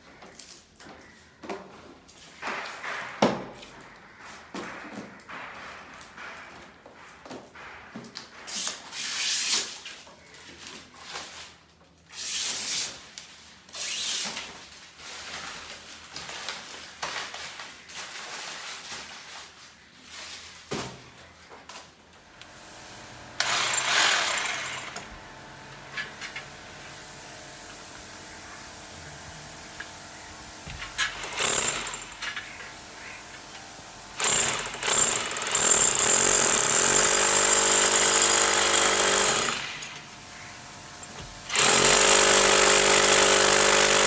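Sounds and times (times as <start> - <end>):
drilling and scraping bursts: 22.7 - 25.2, 25.9 - 44.0.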